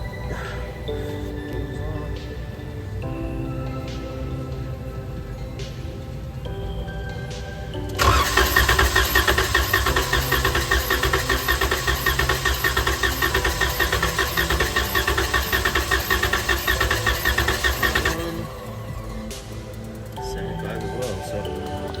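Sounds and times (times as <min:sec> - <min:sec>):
starter cranking engine: 0:08.0 - 0:18.6.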